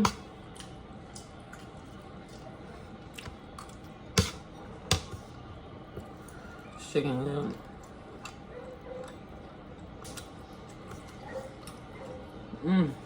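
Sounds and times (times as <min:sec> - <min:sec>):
person chewing: 0:00.1 - 0:04.8, 0:07.5 - 0:12.3.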